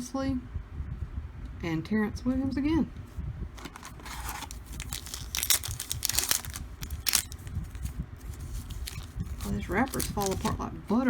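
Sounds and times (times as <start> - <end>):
wrapper tearing and crinkling: 3.6 - 10.6.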